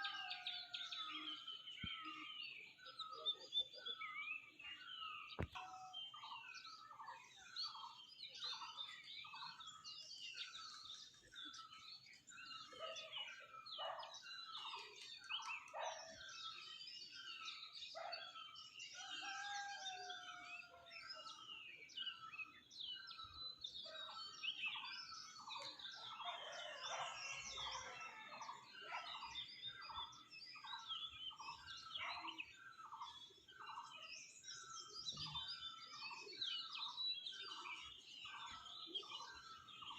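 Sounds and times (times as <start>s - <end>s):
birds chirping and twittering: 0.0s - 39.9s.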